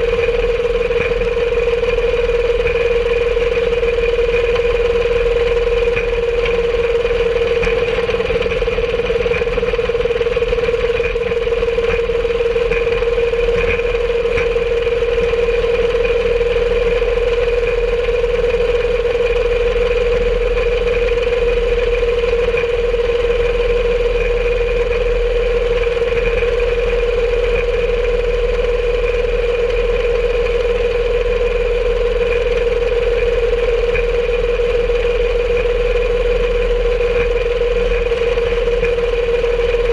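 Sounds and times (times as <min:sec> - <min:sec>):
rail cart motor drone: 0:00.0 - 0:39.9.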